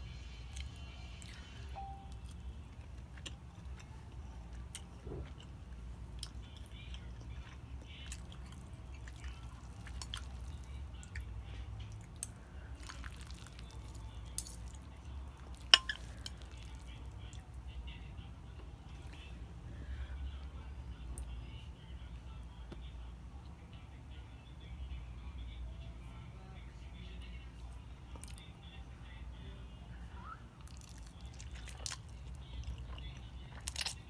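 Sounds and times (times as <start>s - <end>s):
steady low hum: 0.0s - 34.0s
chewing and wet mouth clicks: 6.2s - 11.3s, 11.9s - 17.4s, 28.1s - 28.4s, 30.6s - 34.0s.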